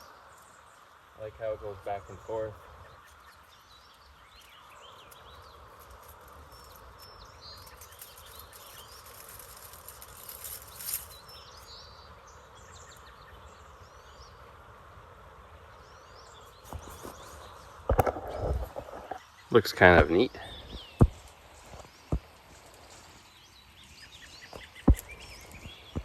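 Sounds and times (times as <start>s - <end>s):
faint insect hum: 0.0s - 26.0s
small birds chirping: 0.0s - 26.0s
brief rustle: 4.4s - 11.7s, 16.6s - 19.2s.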